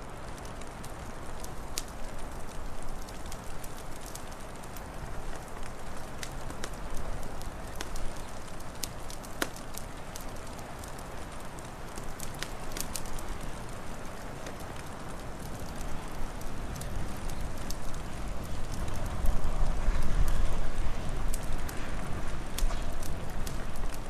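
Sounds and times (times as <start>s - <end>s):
wood fire crackling: 0.0s - 24.0s
rushing wind: 16.4s - 24.0s.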